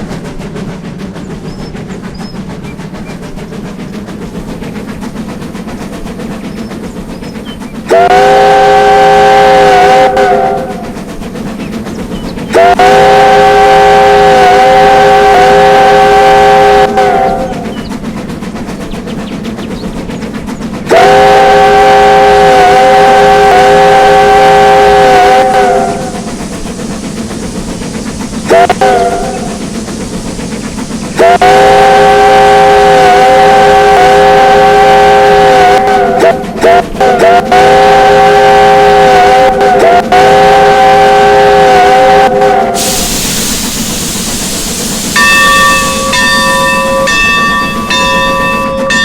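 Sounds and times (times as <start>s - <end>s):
train running rumble: 0.0s - 49.0s
train chime whistle: 20.9s - 26.3s, 31.2s - 49.0s.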